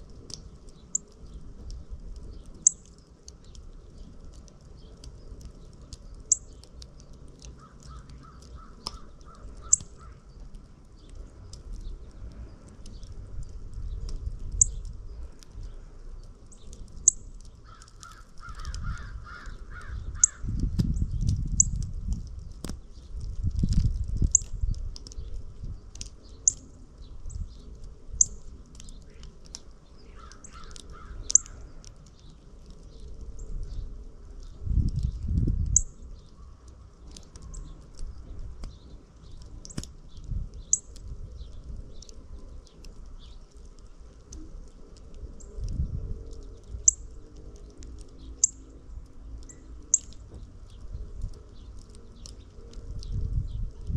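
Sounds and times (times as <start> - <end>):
wind rumble: 0.0 - 53.9
birds chipping: 0.1 - 21.8, 22.6 - 53.9
rapid harsh bird calls: 7.5 - 10.4, 17.6 - 20.6, 29.9 - 31.8.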